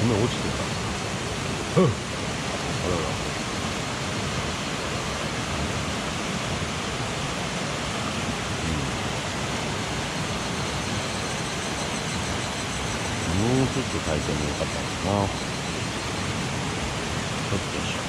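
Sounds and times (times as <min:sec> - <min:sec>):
stream water rushing: 0:00.0 - 0:18.0.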